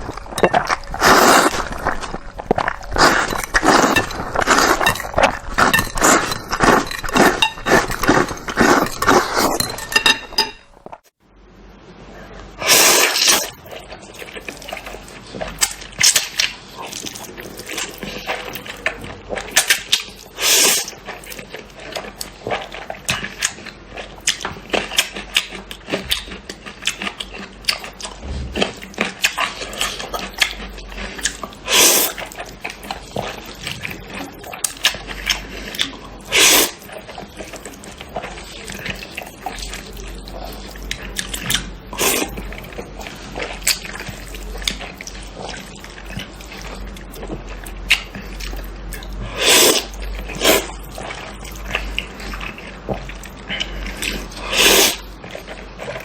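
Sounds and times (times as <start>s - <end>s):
wet chewing of noodles: 0.0s - 11.2s, 12.6s - 56.0s
loud slurps: 0.9s - 2.2s, 12.6s - 13.6s, 36.3s - 36.8s, 49.3s - 50.7s, 54.0s - 55.0s.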